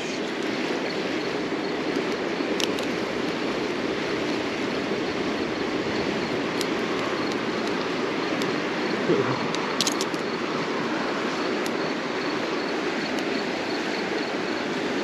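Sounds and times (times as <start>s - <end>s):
rushing outdoor noise: 0.0s - 15.0s.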